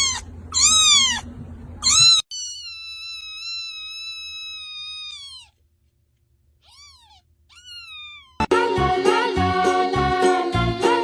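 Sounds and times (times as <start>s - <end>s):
cat meowing: 0.0s - 5.6s, 6.6s - 8.5s.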